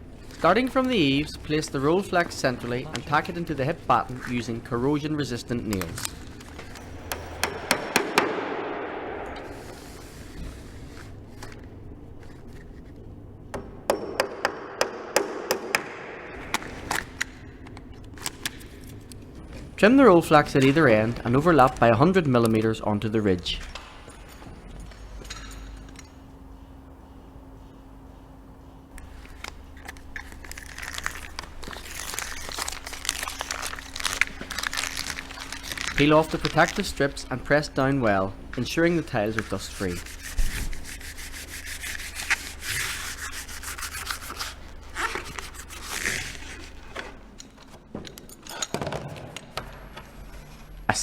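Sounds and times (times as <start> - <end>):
plastic crinkling and crackling: 29.1 - 37.2, 41.9 - 47.6.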